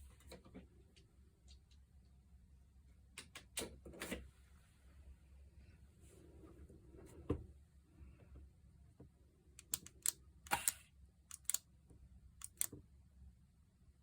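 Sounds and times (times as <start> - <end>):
clicks of small parts and tools: 9.6 - 11.6, 12.4 - 12.8.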